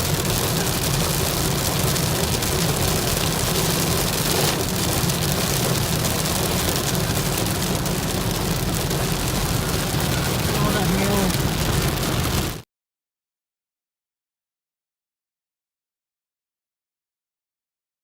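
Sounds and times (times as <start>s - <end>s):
hail and rain on car roof: 0.0s - 12.6s
low road rumble: 0.0s - 12.6s.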